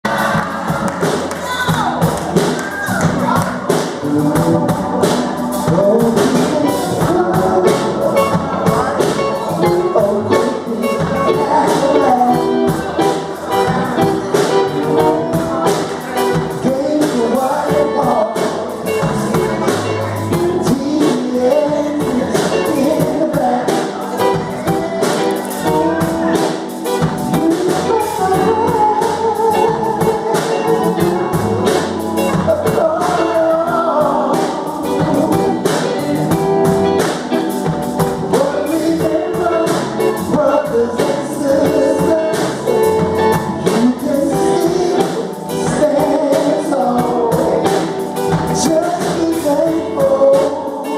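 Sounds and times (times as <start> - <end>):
song with singing and guitar: 0.0 - 50.9.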